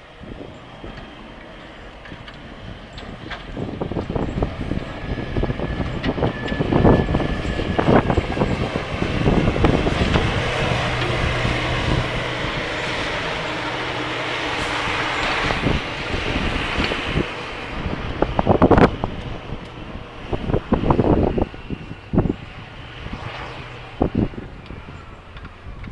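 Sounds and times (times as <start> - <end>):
snowplow rumbling: 0.0 - 25.9.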